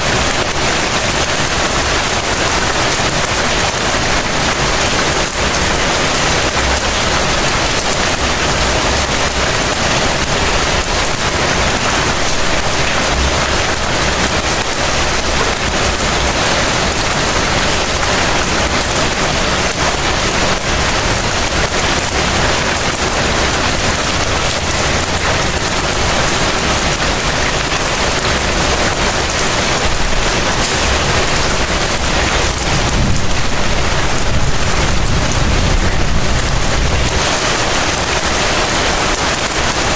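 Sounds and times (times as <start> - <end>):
heavy rain: 0.0 - 39.9
low rumble: 31.4 - 37.2.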